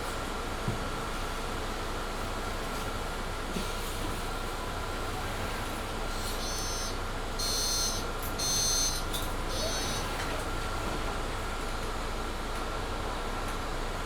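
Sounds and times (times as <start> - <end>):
bus cabin hum: 0.0 - 14.0.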